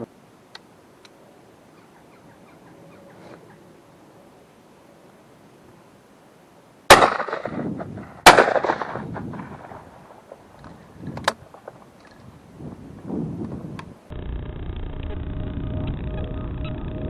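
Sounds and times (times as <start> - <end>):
shotgun shots with echo: 6.9 - 10.2.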